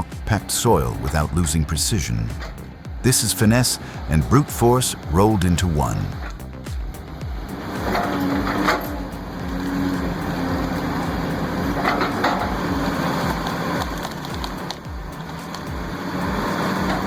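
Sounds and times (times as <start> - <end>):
excavator engine under load: 7.1 - 17.0.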